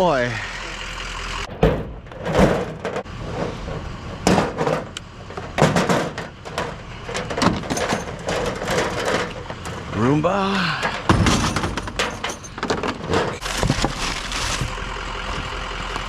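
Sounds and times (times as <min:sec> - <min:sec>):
junk knocking and clacking: 0:01.4 - 0:14.0.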